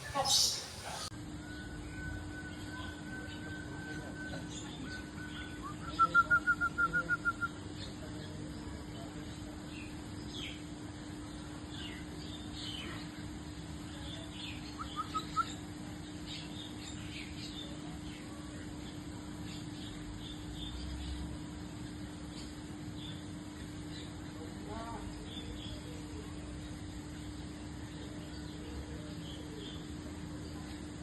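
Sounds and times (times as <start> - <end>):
birds whistling: 0.0 - 8.0, 14.3 - 15.7
small bird chirps: 0.0 - 8.0, 14.0 - 18.3
steady low hum: 0.0 - 31.0.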